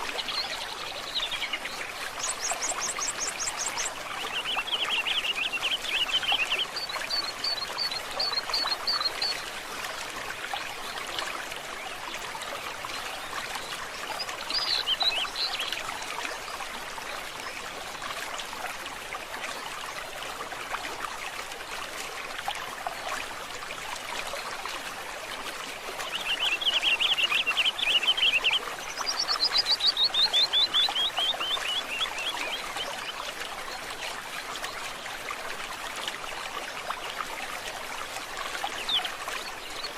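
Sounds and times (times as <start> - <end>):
stream water trickling: 0.0 - 39.9
songbird calls and trills: 0.2 - 9.4, 26.1 - 33.2.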